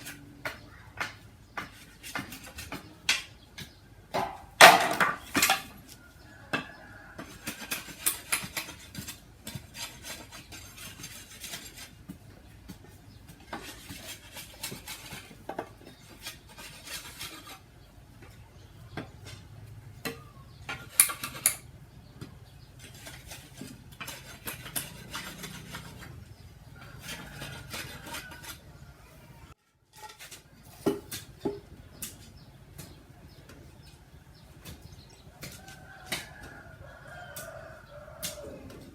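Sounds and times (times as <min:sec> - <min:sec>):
hard objects knocking and clinking: 0:00.1 - 0:05.9, 0:18.2 - 0:28.5.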